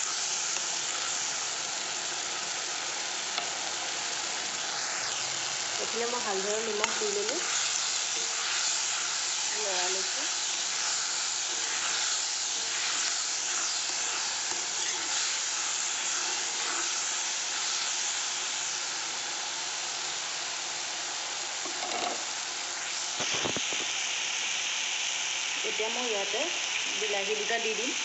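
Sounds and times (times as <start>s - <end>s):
spatula stirring: 0.0s - 2.4s, 4.6s - 18.8s
onions sizzling in hot oil: 0.0s - 28.0s.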